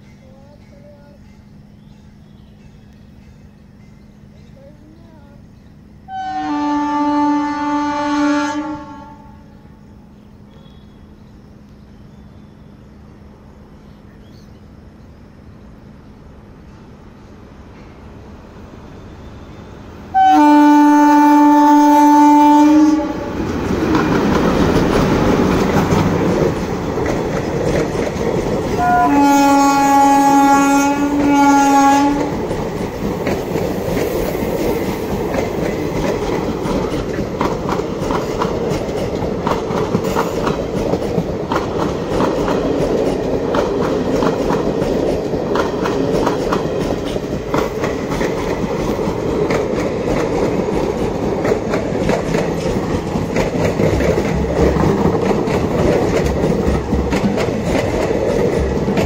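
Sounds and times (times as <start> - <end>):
train rumbling past: 0.0 - 59.0
locomotive horn blasts: 6.1 - 9.6, 19.3 - 23.3, 28.8 - 32.4
wheels clacking over rail joints: 21.4 - 59.0.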